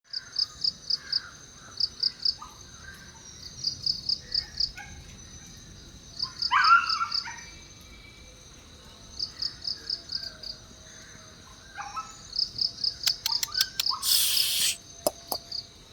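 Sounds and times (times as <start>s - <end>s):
crickets chirping: 0.1s - 15.9s
faint bird calls: 12.9s - 15.6s
loud harsh call: 14.0s - 14.8s.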